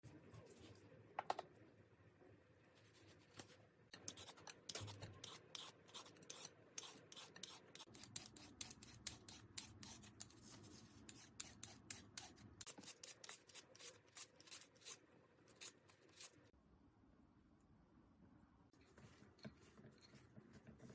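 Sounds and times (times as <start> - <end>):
vegetable peeler scraping: 4.0 - 16.4.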